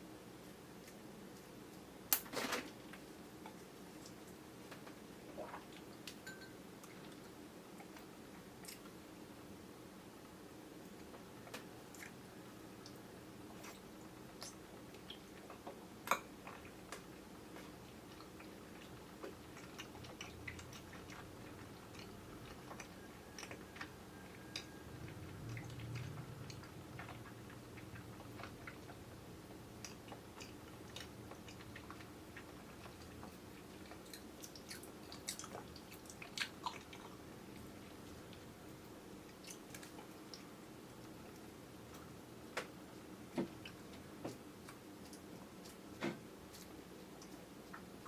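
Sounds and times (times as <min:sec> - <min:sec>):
faint steady hum: 0:00.0 - 0:48.0
chewing jelly: 0:10.9 - 0:42.2.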